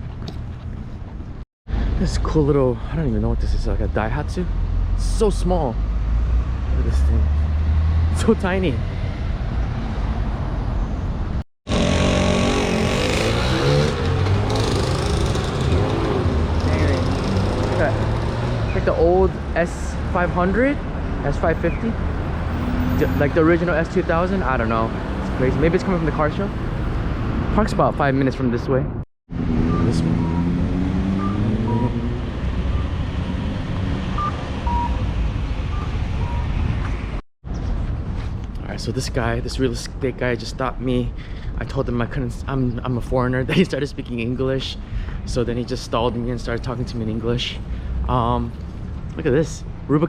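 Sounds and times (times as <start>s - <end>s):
street traffic: 0.0s - 50.0s
car engine revving: 11.7s - 18.7s, 29.3s - 34.7s
two-tone electronic beeper: 29.6s - 30.6s, 31.2s - 33.0s, 34.2s - 35.1s, 35.7s - 36.6s.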